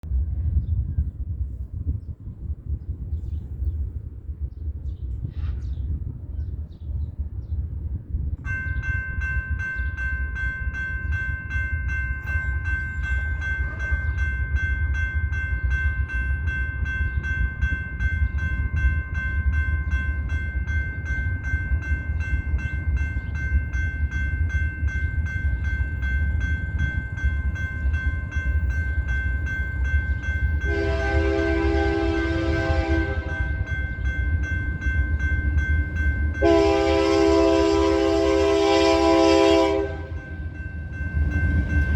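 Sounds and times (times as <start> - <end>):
crossing warning bell ringing: 8.4 - 41.9
locomotive horn chord: 30.6 - 33.8, 36.4 - 40.3.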